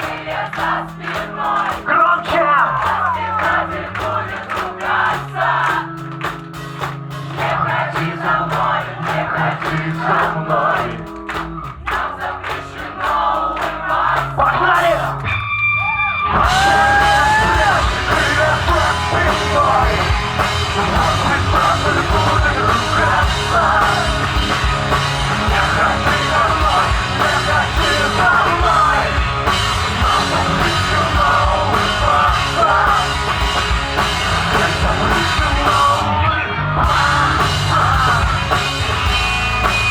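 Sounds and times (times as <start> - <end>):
drums and bass: 0.0 - 39.9
rock band playing live: 0.0 - 39.9
person singing: 16.3 - 33.6, 34.3 - 38.8.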